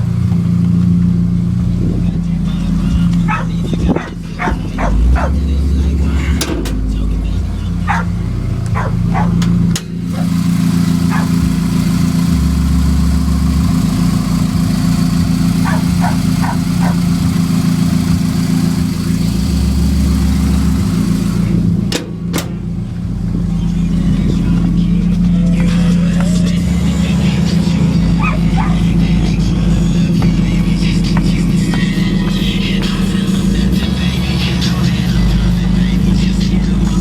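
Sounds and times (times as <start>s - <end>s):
car engine idling: 0.0s - 37.0s
dog barking: 3.3s - 5.4s, 7.9s - 8.2s, 8.8s - 9.4s, 11.1s - 11.4s, 15.6s - 17.1s, 28.2s - 28.9s.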